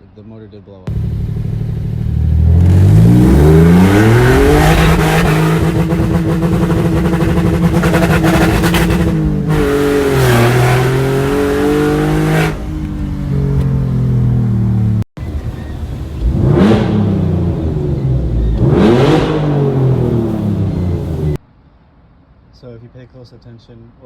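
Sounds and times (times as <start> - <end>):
car engine revving hard: 0.9 - 12.7, 16.2 - 21.4.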